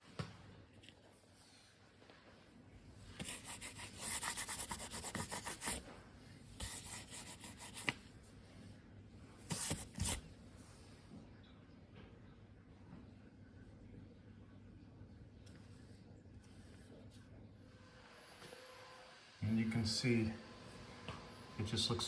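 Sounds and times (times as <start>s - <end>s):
hand scrubbing a surface: 3.2s - 5.8s, 6.6s - 8.0s.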